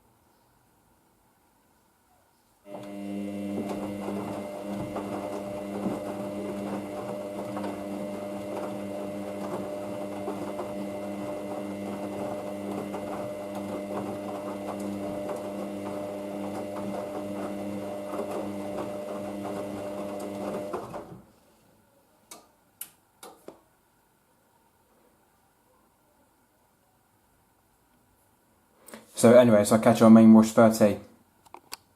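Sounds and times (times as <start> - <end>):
washing machine motor whine: 2.7 - 21.2.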